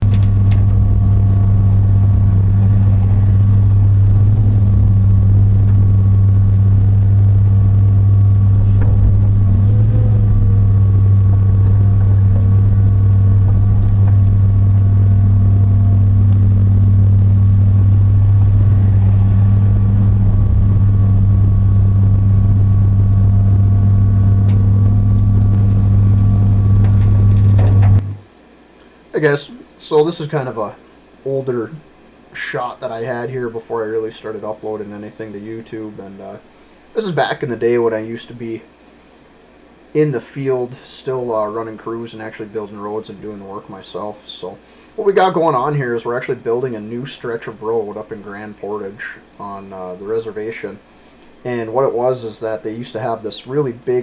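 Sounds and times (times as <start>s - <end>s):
diesel engine droning: 0.0s - 28.2s.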